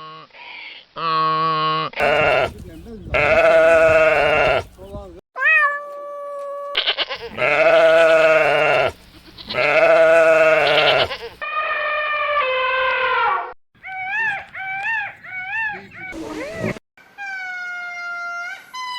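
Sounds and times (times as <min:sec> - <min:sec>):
goats bleating: 0:02.0 - 0:05.1, 0:06.8 - 0:11.4.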